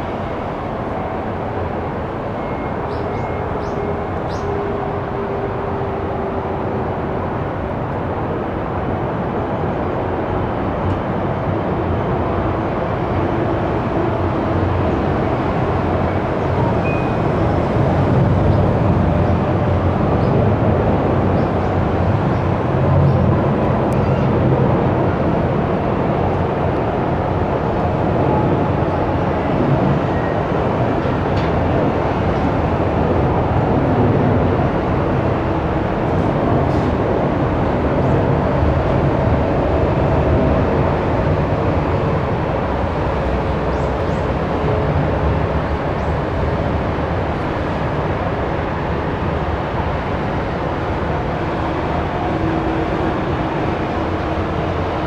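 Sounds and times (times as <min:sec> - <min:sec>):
jet engines rumbling: 0:14.6 - 0:55.0.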